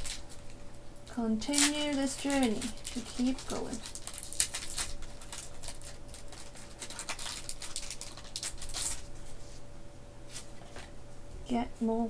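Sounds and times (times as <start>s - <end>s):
foil wrapper torn open: 0.0s - 0.6s, 1.4s - 9.1s.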